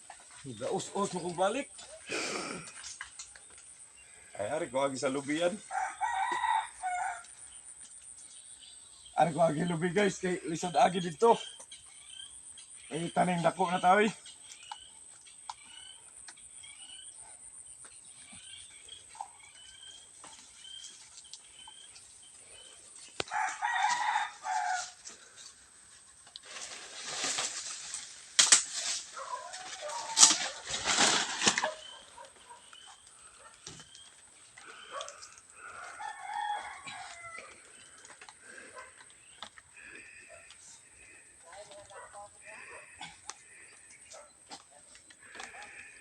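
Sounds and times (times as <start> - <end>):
rooster crowing: 5.7 - 7.3, 23.3 - 25.0, 34.8 - 37.7.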